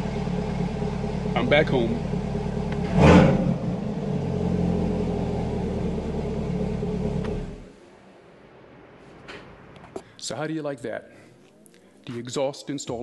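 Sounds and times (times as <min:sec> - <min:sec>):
car engine idling: 0:00.0 - 0:08.8
engine revving burst: 0:01.3 - 0:07.7.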